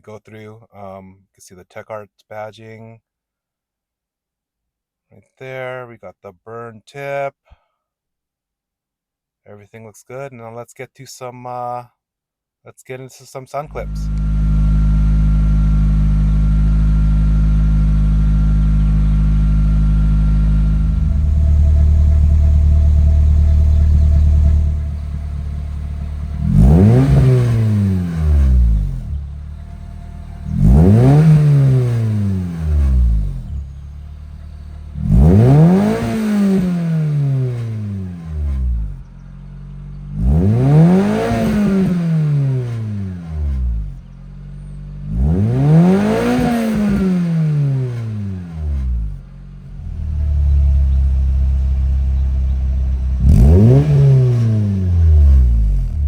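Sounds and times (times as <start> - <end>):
car engine revving from idle: 13.7 - 56.0.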